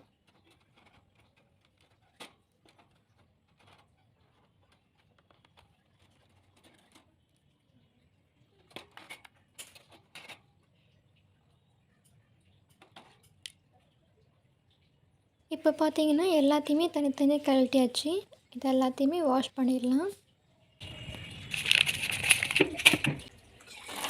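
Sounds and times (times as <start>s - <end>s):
clicks and knocks of a cage: 0.0s - 7.2s.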